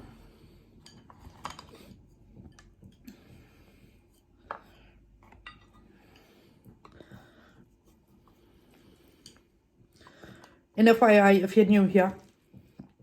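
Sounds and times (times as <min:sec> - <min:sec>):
utensils clinking against dish: 0:00.8 - 0:03.2.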